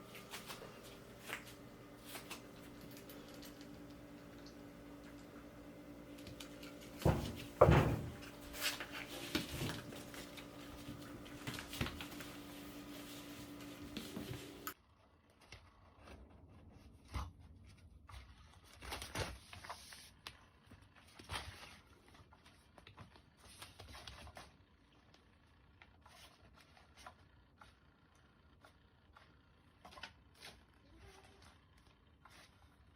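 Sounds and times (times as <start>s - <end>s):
steady low hum: 0.0s - 14.8s
kittens playing with toys: 0.1s - 14.8s.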